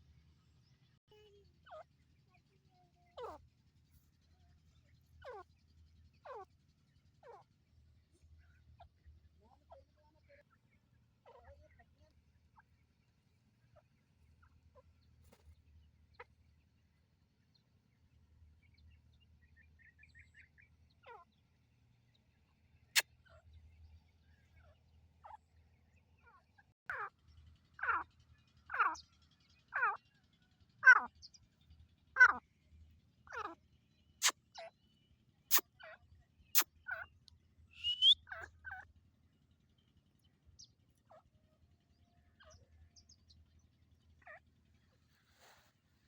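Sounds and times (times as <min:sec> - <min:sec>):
francolin calling: 0:37.8 - 0:38.5.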